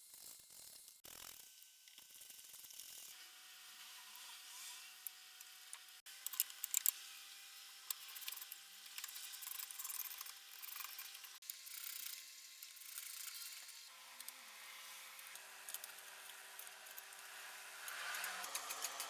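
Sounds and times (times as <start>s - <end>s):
small sharp clicks: 15.2s - 19.0s.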